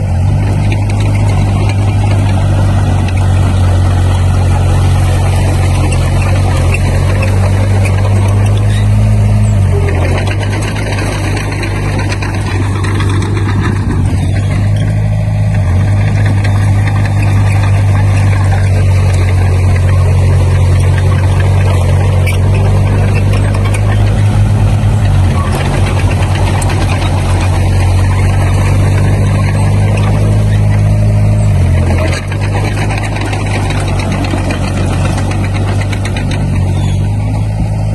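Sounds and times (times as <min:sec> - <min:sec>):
dense clattering noise: 0:00.0 - 0:37.9
diesel engine running: 0:00.0 - 0:37.9.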